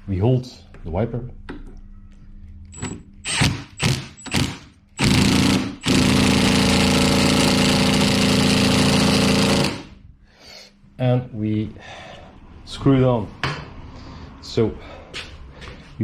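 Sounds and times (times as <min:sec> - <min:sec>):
cordless power tool running: 0:02.8 - 0:09.9.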